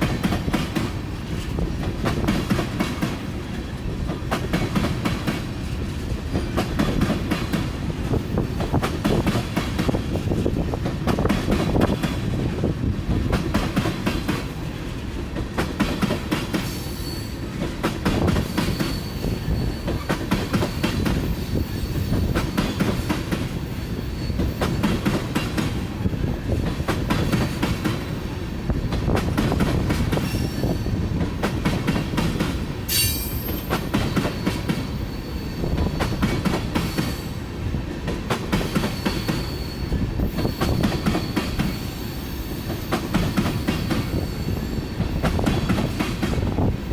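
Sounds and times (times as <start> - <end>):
freight train rumbling past: 0.0 - 46.9
train wheel squeal: 16.4 - 28.4, 29.1 - 37.5, 38.5 - 46.9.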